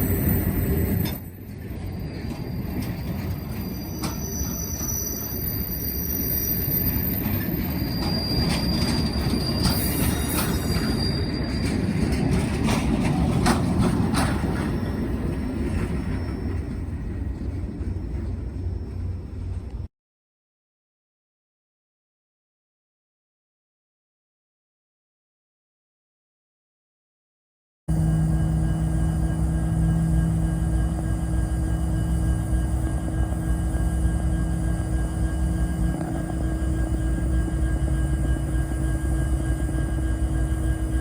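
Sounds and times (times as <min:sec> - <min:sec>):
high-pitched wheel squeal: 0:00.0 - 0:12.8, 0:14.1 - 0:17.0
railcars rumbling: 0:00.0 - 0:19.9, 0:27.9 - 0:41.0.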